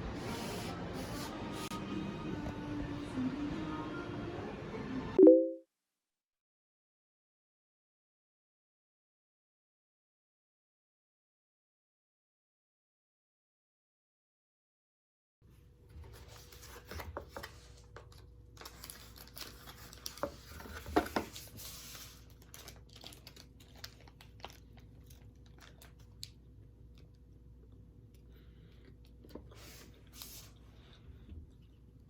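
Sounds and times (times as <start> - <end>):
packaging crinkling and tearing: 16.1 - 26.4.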